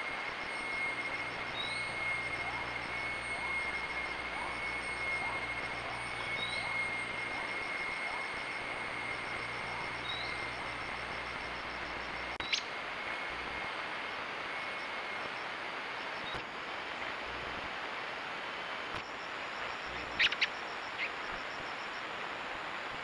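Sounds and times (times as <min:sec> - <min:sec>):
steady outdoor hiss: 0:00.0 - 0:23.0
sharp bird chirps: 0:01.5 - 0:03.6, 0:09.4 - 0:10.7, 0:12.4 - 0:12.7, 0:19.9 - 0:21.2.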